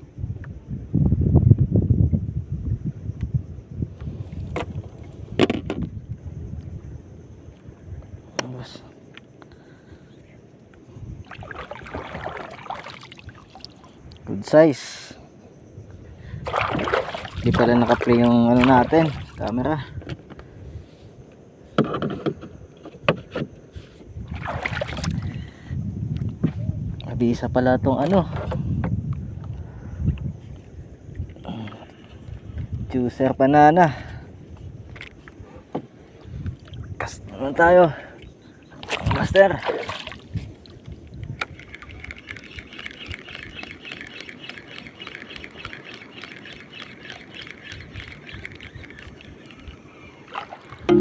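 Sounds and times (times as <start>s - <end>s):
wind and water rumble: 0.0s - 51.0s
knocks and thumps on boat: 4.5s - 5.9s, 21.7s - 23.6s, 50.8s - 51.0s
fishing reel ticking: 41.2s - 49.9s
reel bail click: 41.3s - 49.8s.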